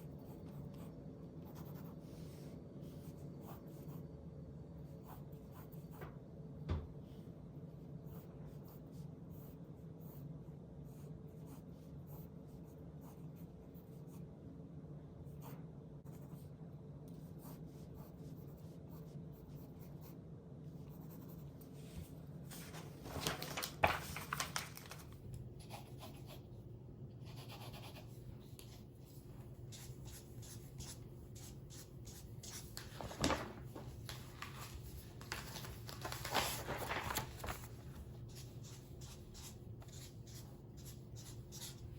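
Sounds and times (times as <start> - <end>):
pen scratching on paper: 0.0 - 2.2, 27.2 - 28.8, 29.7 - 32.7, 38.3 - 41.9
low steady hum: 0.0 - 41.9.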